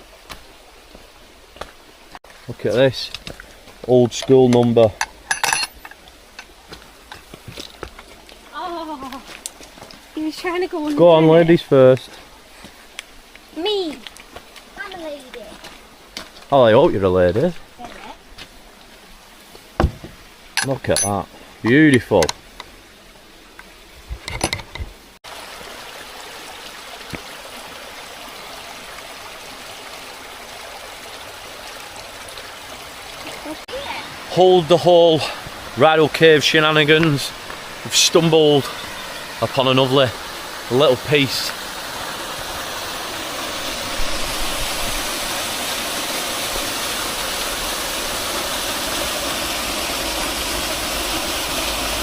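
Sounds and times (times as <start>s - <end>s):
stream water rushing: 0.0s - 52.0s.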